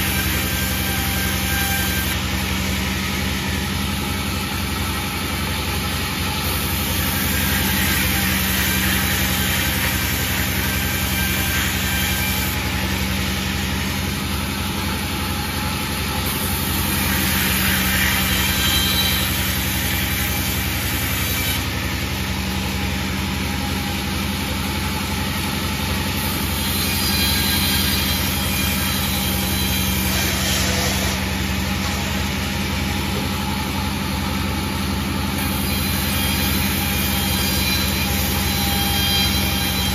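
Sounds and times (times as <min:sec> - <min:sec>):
sawmill engine hum: 0:00.0 - 0:39.9.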